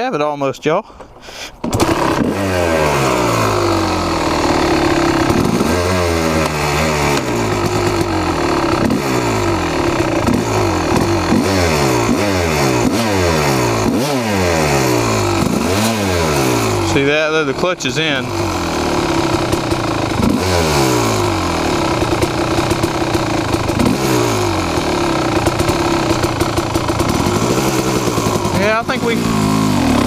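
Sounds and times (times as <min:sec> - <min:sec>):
dirt bike engine revving: 0:01.6 - 0:30.0.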